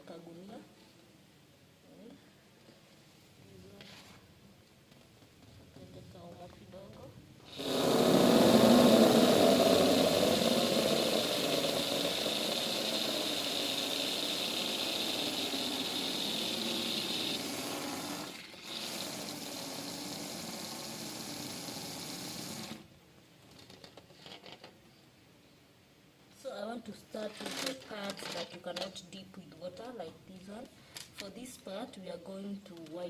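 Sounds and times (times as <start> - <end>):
water running into a bucket: 7.5 - 22.9.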